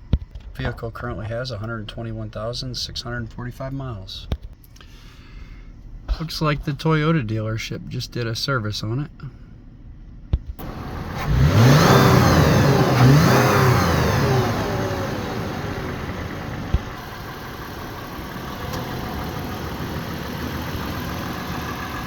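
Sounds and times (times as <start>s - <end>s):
car engine starting and idling: 10.1s - 22.0s.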